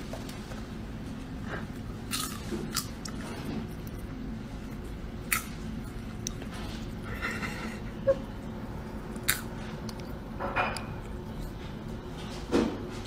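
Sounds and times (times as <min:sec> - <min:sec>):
low steady hum: 0:00.0 - 0:13.0
popcorn crunching chewing: 0:02.0 - 0:07.0, 0:09.0 - 0:11.8.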